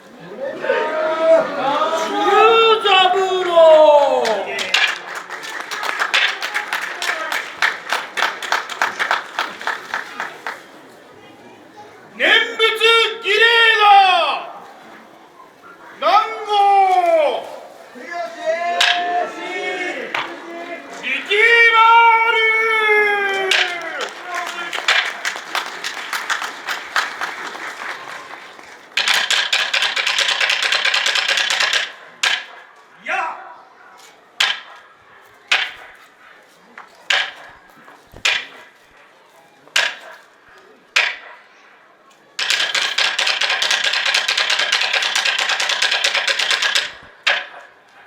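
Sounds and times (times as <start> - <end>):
audience applause: 0.2 - 10.9, 18.0 - 31.7
wooden clappers beaten rapidly: 1.6 - 10.4, 18.7 - 19.5, 20.1 - 32.7, 34.4 - 34.8, 35.5 - 36.0, 37.1 - 38.8, 39.8 - 40.2, 41.0 - 41.3, 42.4 - 47.7.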